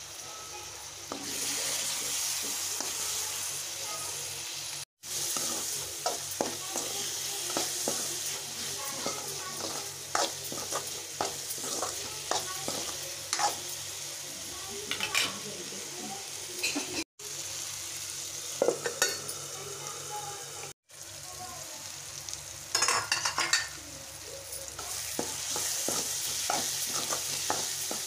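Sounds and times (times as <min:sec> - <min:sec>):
food sizzling in oil: 0:00.0 - 0:28.0
spoon scraping a metal pan: 0:05.3 - 0:13.7.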